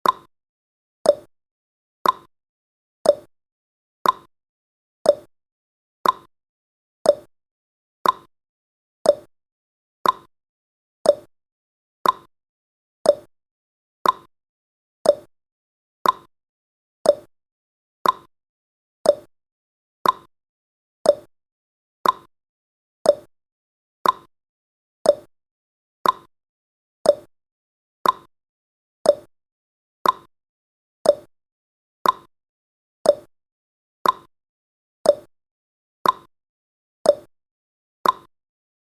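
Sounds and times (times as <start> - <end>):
clock ticking: 2.0 - 2.3, 4.0 - 4.3, 6.0 - 6.3, 8.0 - 8.3, 10.0 - 10.3, 12.0 - 12.3, 14.0 - 14.3, 15.1 - 15.3, 16.0 - 16.3, 18.0 - 18.3, 19.1 - 19.3, 20.0 - 20.3, 21.1 - 21.3, 22.0 - 22.3, 24.0 - 24.3, 26.0 - 26.3, 28.0 - 28.3, 29.1 - 29.3, 30.0 - 30.3, 31.1 - 31.3, 32.0 - 32.3, 33.1 - 33.3, 34.0 - 34.3, 35.1 - 35.3, 36.0 - 36.3, 38.0 - 38.3.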